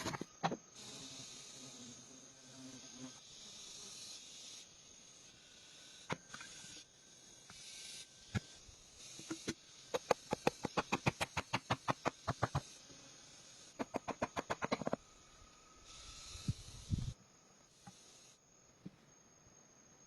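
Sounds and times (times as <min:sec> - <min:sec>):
steady hiss: 0:00.0 - 0:20.0
rapid sharp taps: 0:10.0 - 0:12.6, 0:13.8 - 0:15.0.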